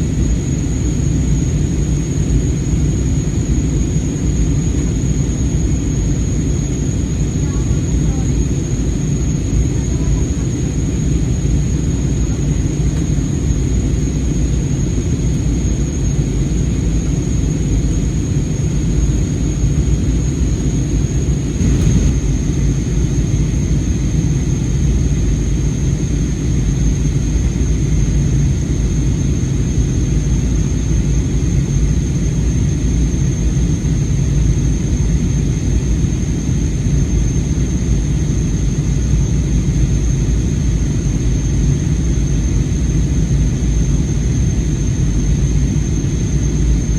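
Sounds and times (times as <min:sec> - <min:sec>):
airliner cabin rumble: 0:00.0 - 0:25.5.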